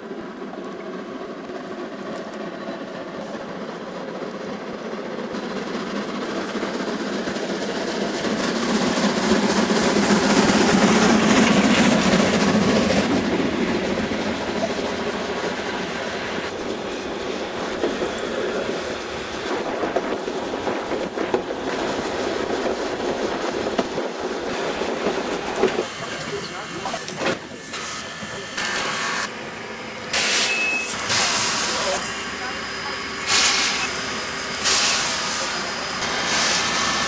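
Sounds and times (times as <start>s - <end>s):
train wheels clattering over track: 0.0s - 29.4s, 30.0s - 37.0s.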